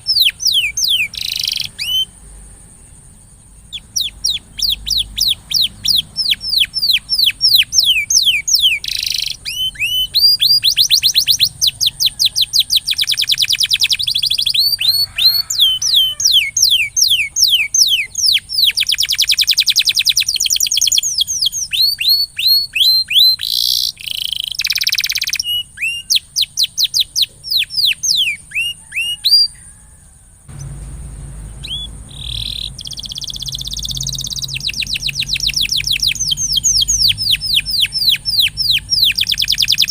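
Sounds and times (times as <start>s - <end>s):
canary singing trills: 0.0s - 39.9s
low hum: 30.5s - 38.0s.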